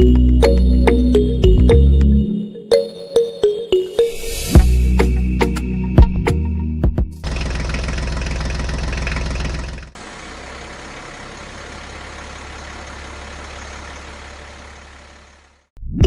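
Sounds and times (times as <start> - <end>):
heavy vehicle engine idling: 7.2 - 15.7.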